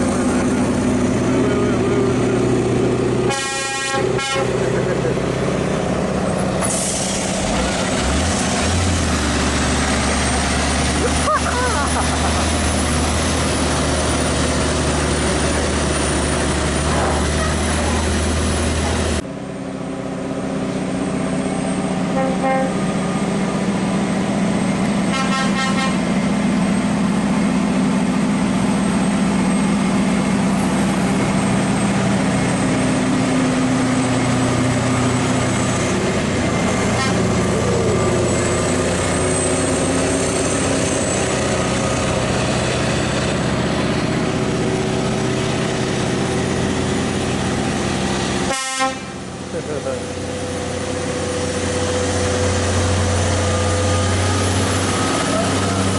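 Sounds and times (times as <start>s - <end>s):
heavy truck engine running: 0.0s - 55.9s
truck horn toot: 3.3s - 4.8s, 22.1s - 22.8s, 25.1s - 26.2s, 36.8s - 37.7s, 48.5s - 49.2s.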